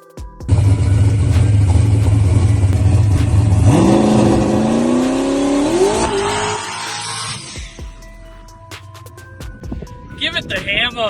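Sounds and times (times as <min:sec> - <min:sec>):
race car engine accelerating: 0:00.5 - 0:07.7.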